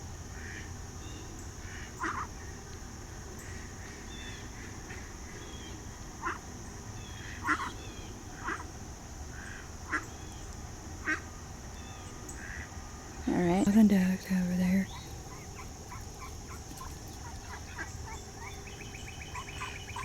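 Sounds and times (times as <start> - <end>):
steady high hiss: 0.0 - 20.0
ducks quacking: 1.7 - 2.3, 7.2 - 7.8, 14.9 - 20.0
small birds chirping: 13.2 - 20.0.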